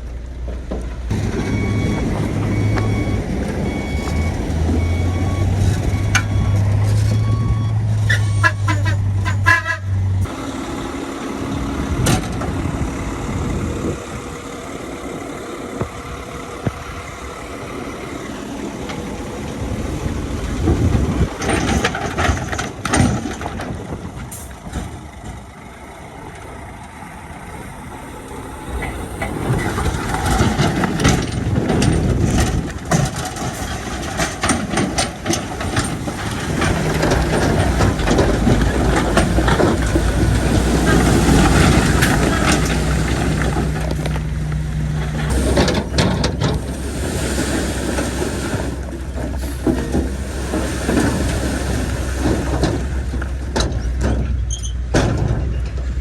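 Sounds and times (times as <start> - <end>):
heavy diesel machinery running: 0.0 - 56.0
metal knocks and clanks: 20.5 - 25.6, 28.8 - 46.8, 47.8 - 56.0.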